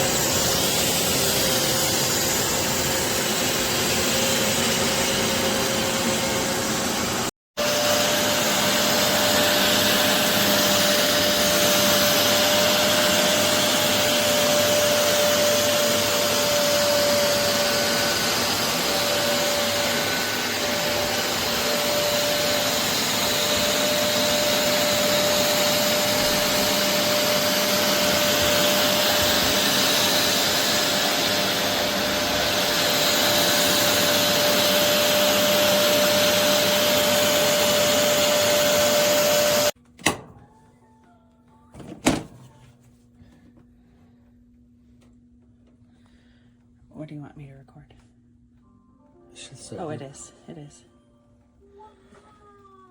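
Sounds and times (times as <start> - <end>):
carpet cleaner suction hiss: 0.0 - 39.8.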